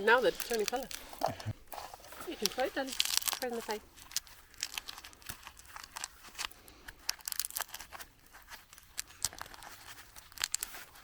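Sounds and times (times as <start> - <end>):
wood fire crackling: 0.0 - 7.9.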